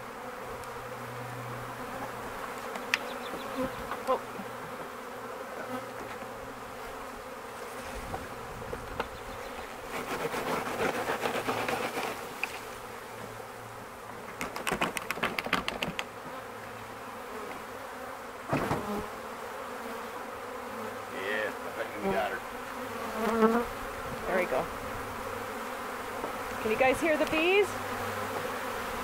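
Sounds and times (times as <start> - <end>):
bee swarm buzzing: 0.0 - 29.0
rapid clicking and rustling: 14.4 - 16.1.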